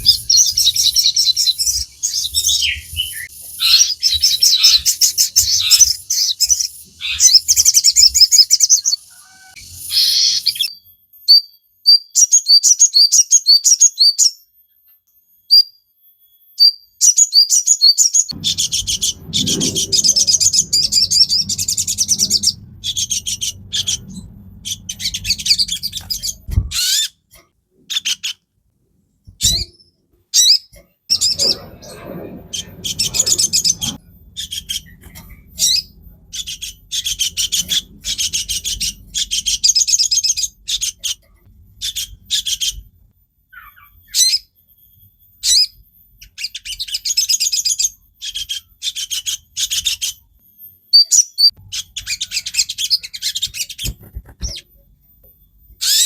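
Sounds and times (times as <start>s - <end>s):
bird twittering trills: 0.0s - 11.5s, 18.1s - 27.3s, 29.4s - 42.9s.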